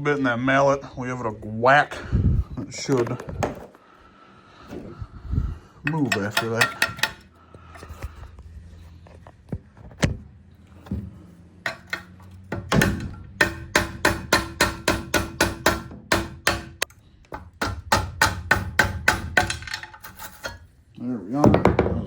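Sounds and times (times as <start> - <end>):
mallet striking metal: 12.6 - 16.8.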